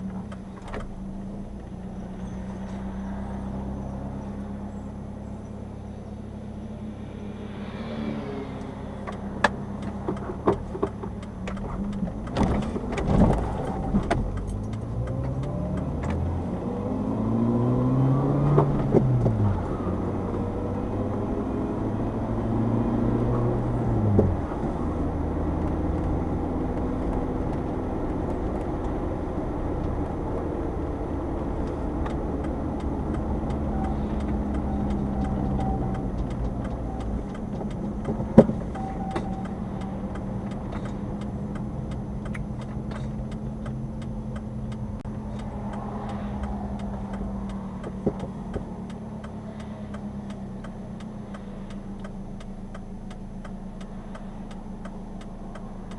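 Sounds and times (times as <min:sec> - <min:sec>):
light clicks: 0:31.6 - 0:55.9.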